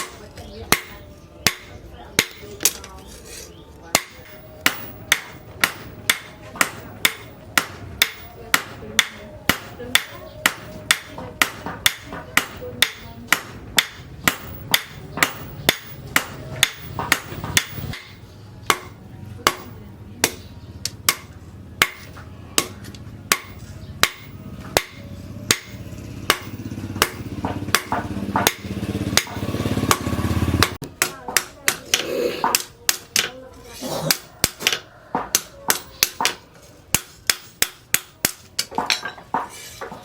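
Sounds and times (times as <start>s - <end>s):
hammer ringing on steel: 3.9s - 20.5s, 21.1s - 31.9s.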